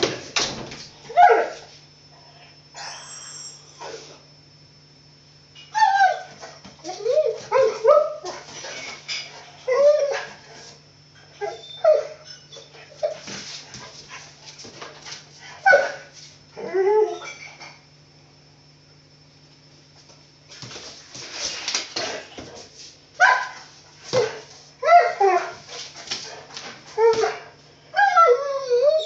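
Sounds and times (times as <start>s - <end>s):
dog whining and yipping: 5.7s - 8.4s, 11.4s - 13.2s, 27.0s - 27.4s, 28.0s - 29.0s.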